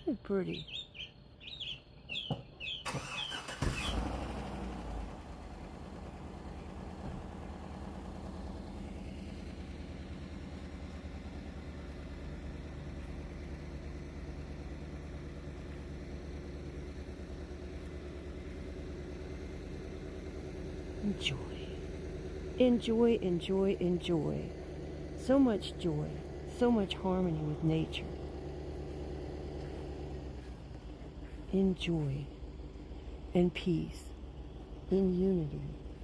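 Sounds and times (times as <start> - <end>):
bird chirps: 0.0 - 3.4
engine idling hum: 0.0 - 36.0.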